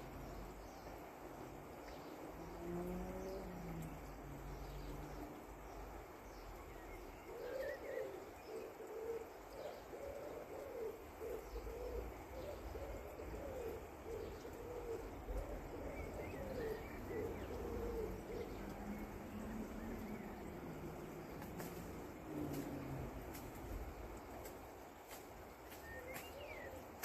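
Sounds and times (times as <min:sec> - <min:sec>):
bird hooting: 0:07.4 - 0:20.6.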